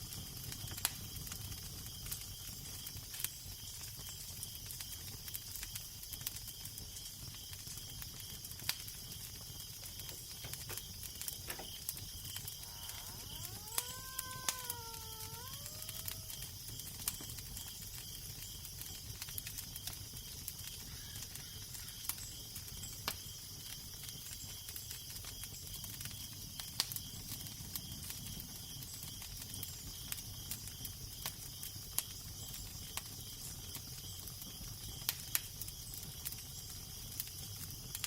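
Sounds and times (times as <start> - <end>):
fire crackling and popping: 0.0 - 38.0
wavering pitched moan: 12.6 - 16.4.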